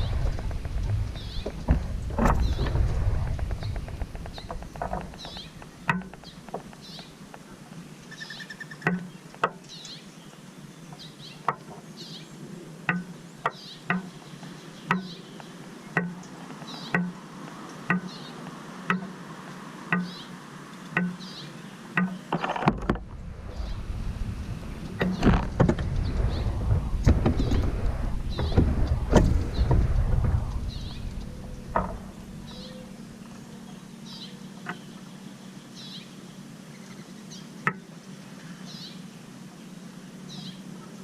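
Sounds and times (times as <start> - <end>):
small birds chirping: 0.0 - 22.6, 23.2 - 41.0
sharp tapping: 3.2 - 7.4, 14.9 - 17.2, 18.9 - 19.2, 19.9 - 20.2, 21.0 - 21.2.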